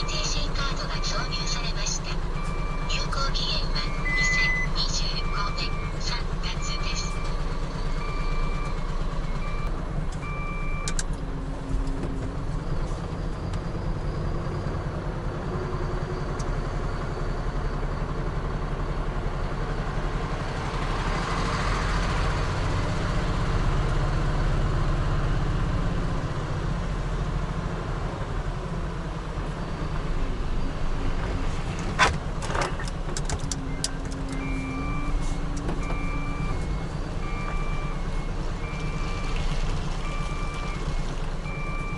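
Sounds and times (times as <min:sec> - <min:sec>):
electronic beeps: 0:00.0 - 0:07.4, 0:33.6 - 0:35.2.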